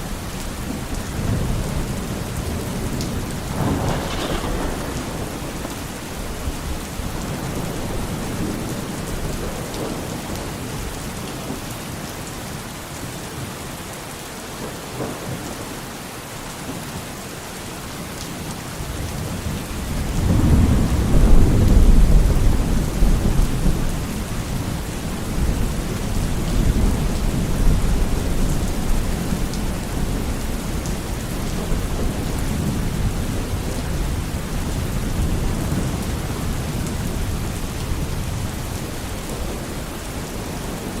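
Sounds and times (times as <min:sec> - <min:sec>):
heavy rain: 0:00.0 - 0:41.0
thunder rolling: 0:01.2 - 0:10.1.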